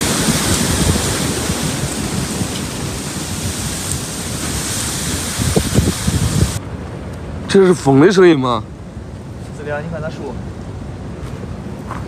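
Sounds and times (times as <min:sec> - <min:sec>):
wind buffeting microphone: 0:00.0 - 0:07.9
strong wind blowing: 0:00.0 - 0:11.9.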